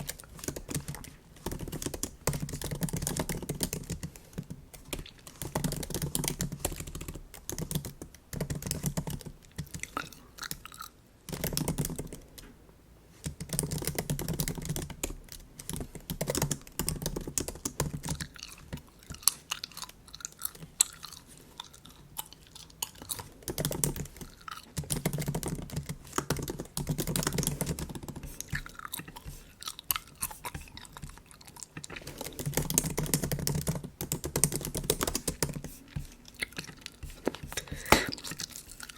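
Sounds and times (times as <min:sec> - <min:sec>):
bubble gum chewing: 0:18.1 - 0:23.5, 0:28.2 - 0:33.1, 0:35.8 - 0:38.9
keyboard typing clicks: 0:32.0 - 0:35.7.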